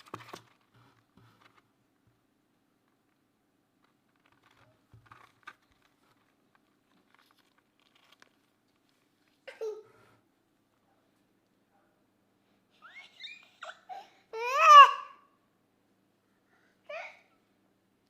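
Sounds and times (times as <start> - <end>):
small handling clicks and rustles: 2.8 - 9.4.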